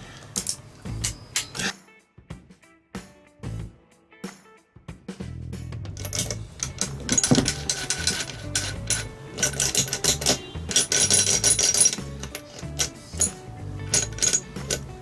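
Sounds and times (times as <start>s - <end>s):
metal engine parts clinking: 0.0s - 1.7s, 6.0s - 15.0s
background music: 0.0s - 15.0s.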